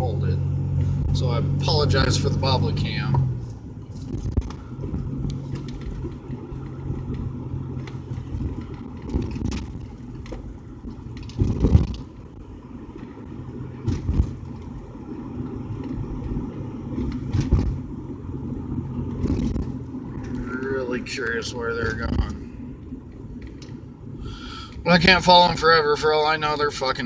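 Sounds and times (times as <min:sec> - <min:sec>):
car engine and tyre hum: 0:00.0 - 0:27.0
short thumps: 0:13.8 - 0:14.8.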